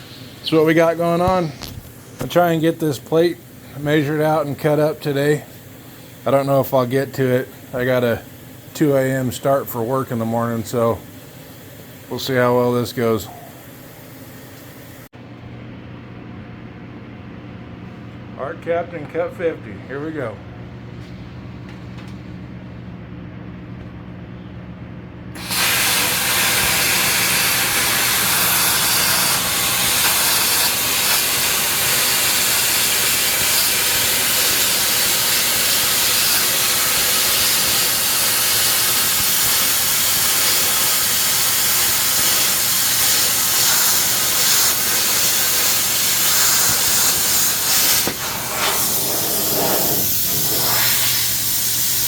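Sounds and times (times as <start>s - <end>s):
plasma cutter hissing: 25.4s - 52.0s.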